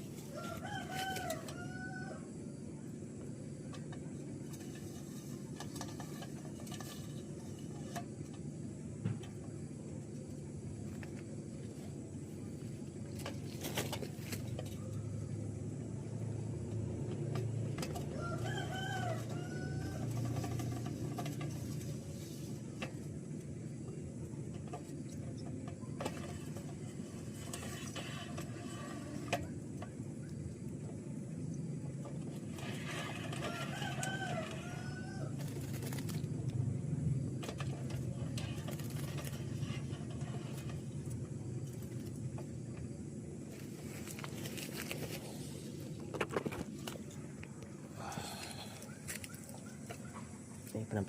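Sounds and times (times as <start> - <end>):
rooster crowing: 0.2 - 2.4, 18.0 - 20.9, 32.9 - 35.6.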